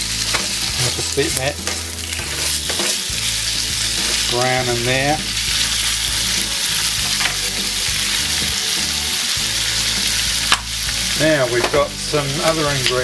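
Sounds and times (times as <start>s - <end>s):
chicken sizzling in a frying pan: 0.0s - 13.0s.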